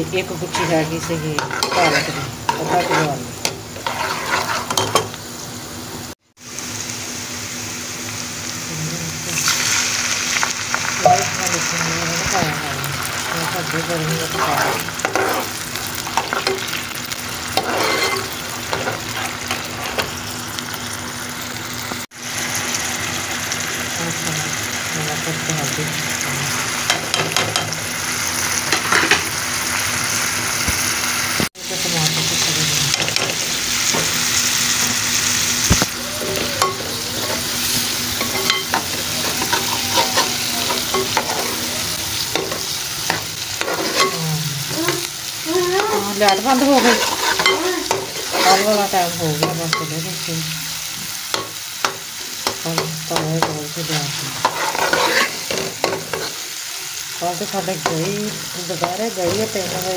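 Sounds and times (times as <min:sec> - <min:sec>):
onions sizzling in oil: 0:00.0 - 0:59.9
ladle scraping a steel pot: 0:00.5 - 0:05.1, 0:14.3 - 0:15.6, 0:17.6 - 0:20.1, 0:46.8 - 0:48.8, 0:54.5 - 0:56.4.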